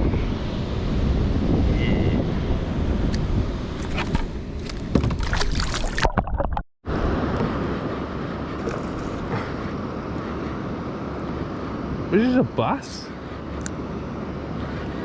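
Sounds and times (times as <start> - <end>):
wind: 0.0 - 15.0
water around a kayak: 2.5 - 15.0
sharp knocks and splashy clicks: 3.8 - 6.6.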